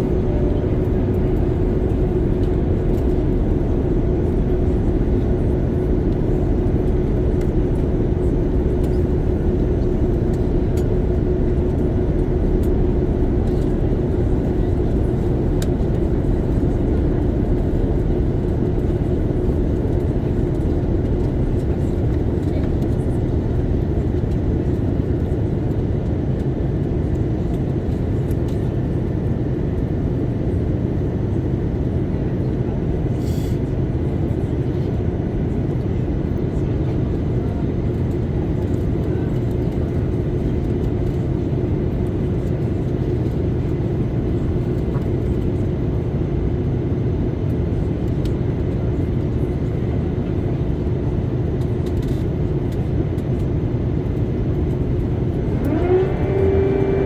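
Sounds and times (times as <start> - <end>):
airplane cabin drone: 0.0 - 57.0.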